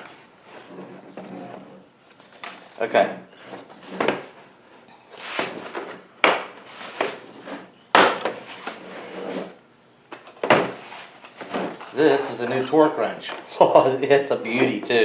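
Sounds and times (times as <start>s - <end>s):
plastic case rubbing and rustling: 0.0s - 2.8s, 5.2s - 9.6s, 10.4s - 12.6s.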